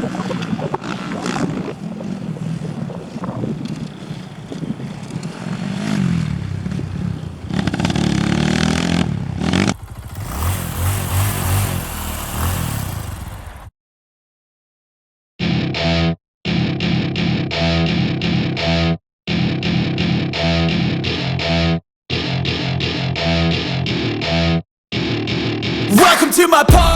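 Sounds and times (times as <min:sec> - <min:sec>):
motorcycle engines revving: 0:00.0 - 0:13.7.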